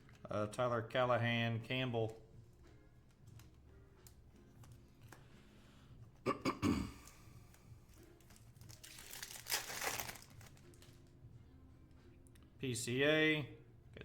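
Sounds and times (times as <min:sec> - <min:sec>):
foil wrapper crinkling and tearing: 0:07.9 - 0:11.0.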